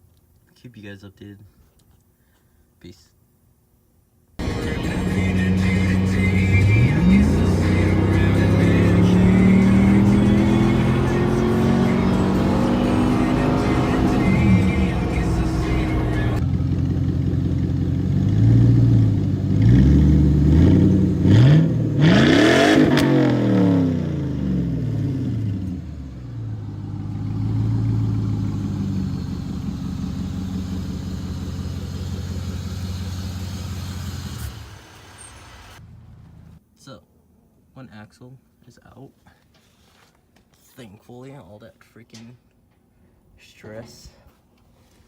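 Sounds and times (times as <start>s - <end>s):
car engine revving: 4.4s - 36.6s.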